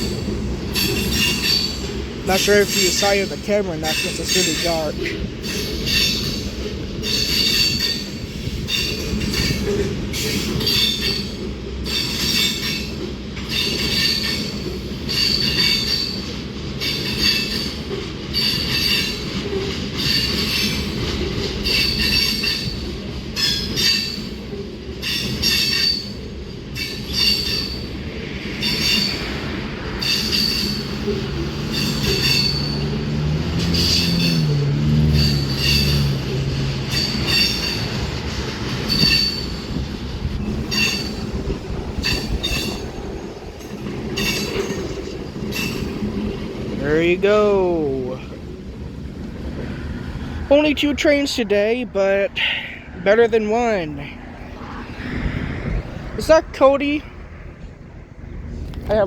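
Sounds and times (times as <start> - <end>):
train wheels squealing: 0.0 - 46.2
wheels clacking over rail joints: 0.0 - 52.4
train rumble: 0.0 - 59.0.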